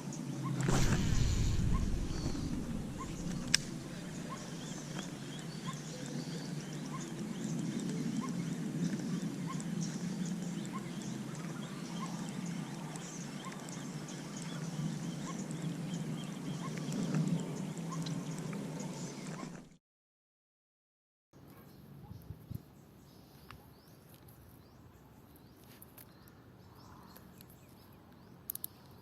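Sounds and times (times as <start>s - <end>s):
sharp click: 0.6s - 5.1s.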